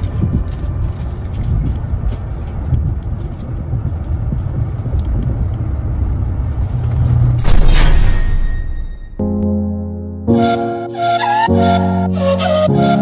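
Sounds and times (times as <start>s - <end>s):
train rumbling inside carriage: 0.0s - 8.6s.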